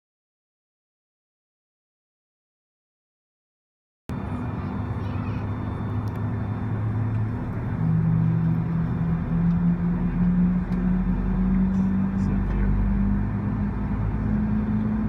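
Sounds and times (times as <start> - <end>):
mechanical rumble with droning tones: 4.1 - 15.0.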